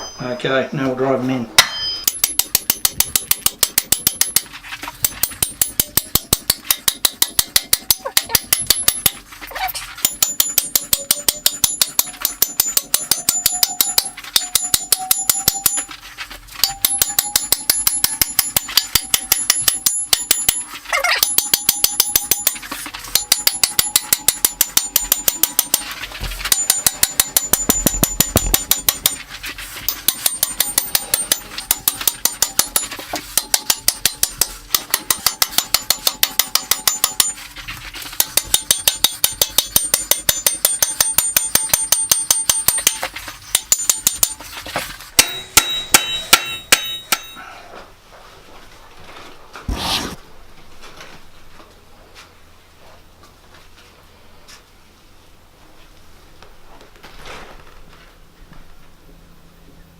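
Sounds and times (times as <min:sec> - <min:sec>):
anvil ringing tone: 0:00.0 - 0:00.7, 0:01.6 - 0:09.2, 0:10.0 - 0:15.9, 0:16.6 - 0:29.2, 0:29.8 - 0:37.4, 0:38.2 - 0:44.4, 0:45.2 - 0:47.6
fast hammering on metal spikes: 0:01.6 - 0:47.4.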